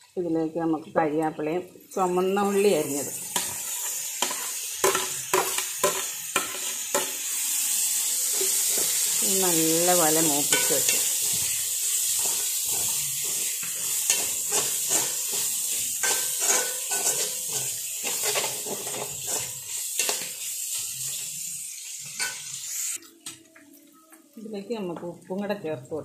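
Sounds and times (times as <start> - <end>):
food sizzling in hot oil: 1.7 - 23.2
metal ladle scraping a pan: 2.4 - 7.3, 10.4 - 21.2.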